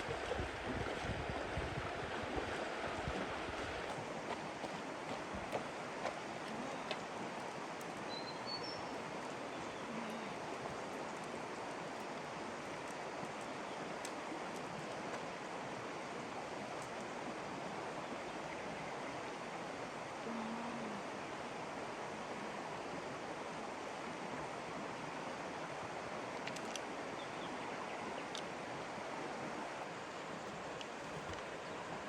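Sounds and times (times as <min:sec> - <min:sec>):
floodwater rushing: 0:00.0 - 0:18.0.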